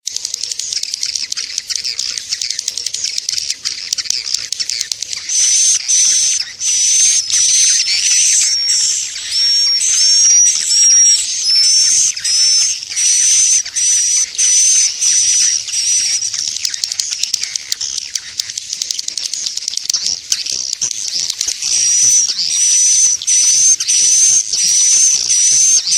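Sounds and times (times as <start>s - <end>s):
swiftlet twittering: 0.0s - 25.9s
loud high chirps: 0.2s - 25.9s.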